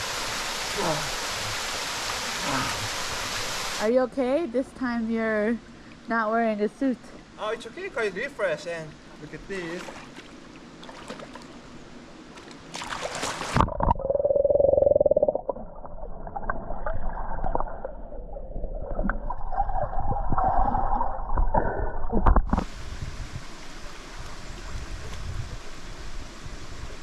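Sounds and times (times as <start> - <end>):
stream rushing: 0.0 - 3.9
splash into water: 9.8 - 11.5, 12.7 - 13.7
underwater gurgling and bubbling: 13.5 - 22.8.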